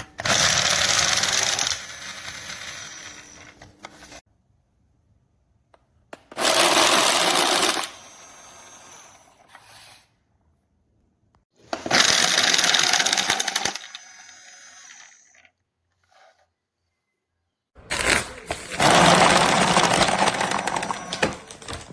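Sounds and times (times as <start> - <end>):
card shuffler motor whirring: 0.0 - 4.2.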